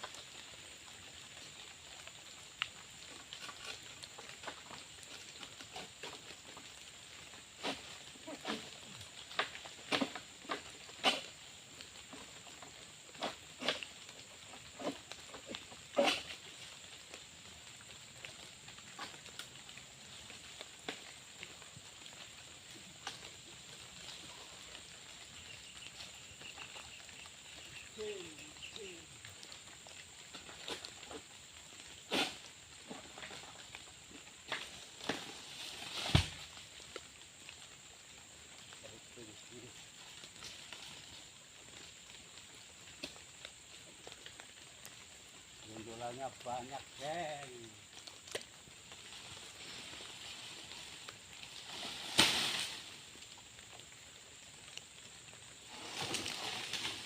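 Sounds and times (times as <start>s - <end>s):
light rain hiss: 0.0s - 57.0s
sharp knocks and rustles: 34.5s - 36.5s.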